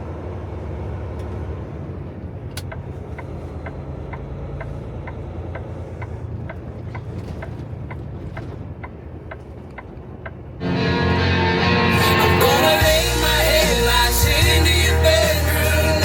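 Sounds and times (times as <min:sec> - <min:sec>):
road noise: 0:00.0 - 0:16.0
truck engine drone: 0:00.0 - 0:16.0
turn signal ticking: 0:02.2 - 0:10.6.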